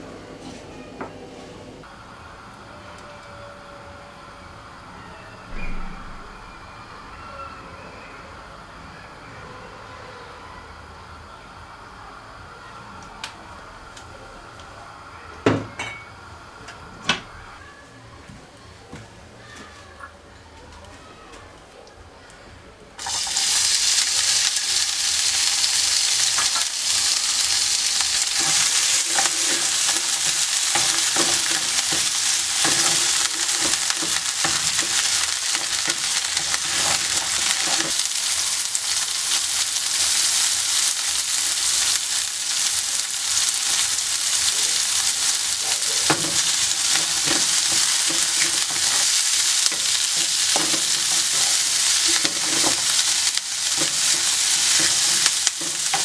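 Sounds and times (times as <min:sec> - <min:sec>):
food sizzling in hot oil: 0:23.0 - 0:56.0
utensil scraping a pan: 0:27.3 - 0:38.0, 0:45.0 - 0:56.0.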